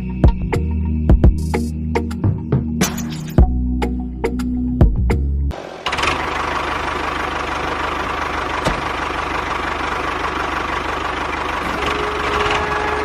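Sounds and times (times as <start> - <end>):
held musical note: 11.6 - 13.0.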